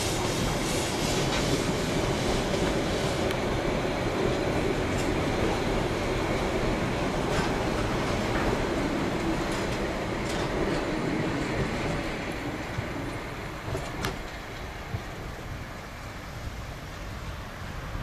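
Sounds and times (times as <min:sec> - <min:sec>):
train wheels clicking: 0:00.0 - 0:15.3
train coaches rumbling past: 0:00.0 - 0:18.0.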